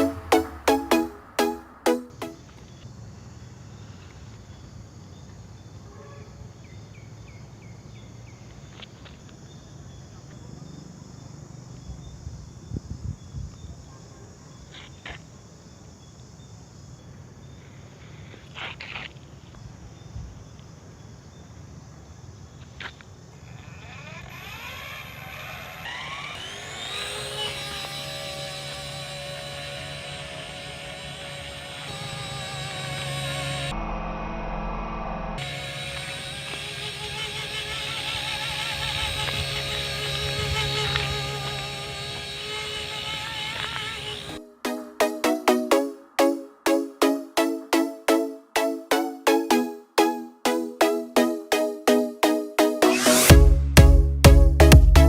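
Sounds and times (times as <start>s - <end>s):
outdoor background noise: 0.0s - 44.8s
motor whine rising in pitch: 23.6s - 44.4s.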